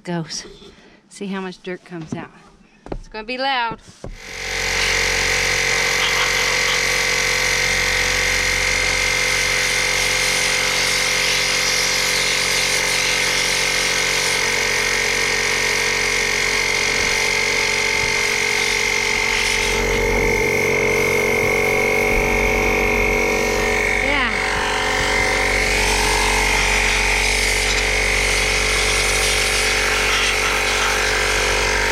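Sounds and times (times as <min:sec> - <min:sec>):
compressed air hissing: 0:09.2 - 0:31.9.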